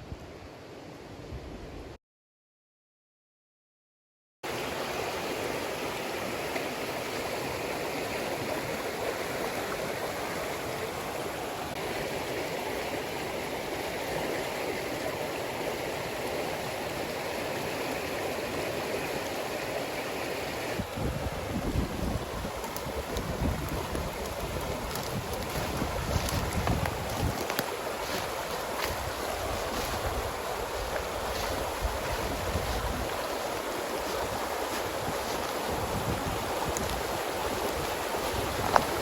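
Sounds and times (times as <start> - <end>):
stream water flowing: 4.4 - 39.0
wind buffeting microphone: 20.8 - 39.0.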